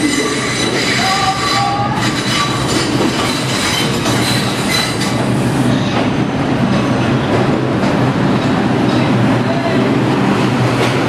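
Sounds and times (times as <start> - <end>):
high wheel squeals: 0.0 - 5.2
subway train wheels clacking: 0.0 - 11.0.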